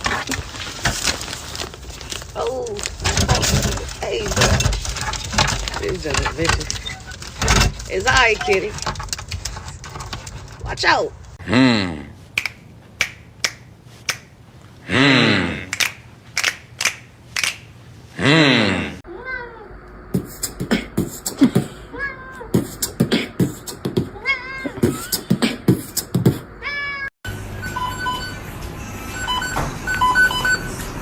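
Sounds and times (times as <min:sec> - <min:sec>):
cat yowling: 0:19.1 - 0:19.7, 0:24.2 - 0:24.8
cat mewing: 0:24.2 - 0:25.0, 0:26.6 - 0:27.1.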